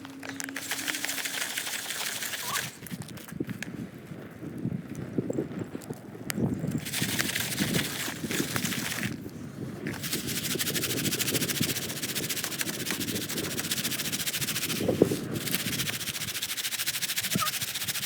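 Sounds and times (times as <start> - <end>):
popcorn pan rattling: 0.2 - 2.8, 6.8 - 9.1, 9.9 - 18.0.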